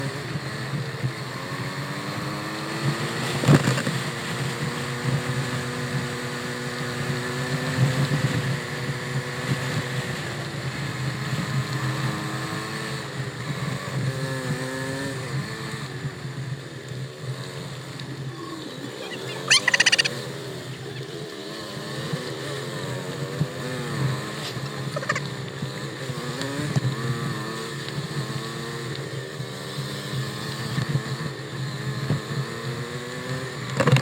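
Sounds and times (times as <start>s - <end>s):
vehicle engine running: 15.3s - 32.2s.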